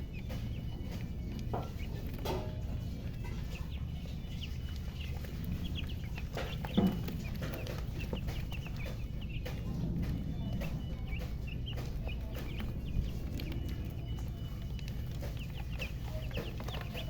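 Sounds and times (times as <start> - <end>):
chicks peeping: 0.0 - 17.0
hen clucking: 0.0 - 17.0
steady low hum: 0.0 - 17.0.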